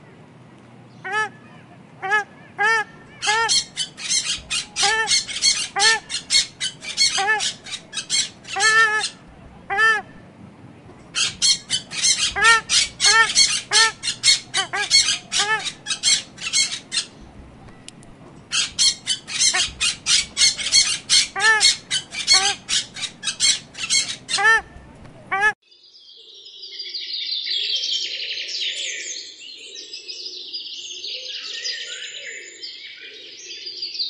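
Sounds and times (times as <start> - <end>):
birds squawking: 0.9 - 10.3, 10.9 - 25.6.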